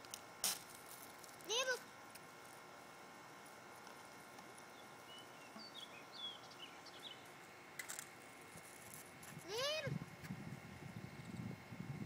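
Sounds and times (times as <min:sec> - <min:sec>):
steady low hiss: 0:00.0 - 0:12.0
faint bird chirps: 0:04.7 - 0:07.3.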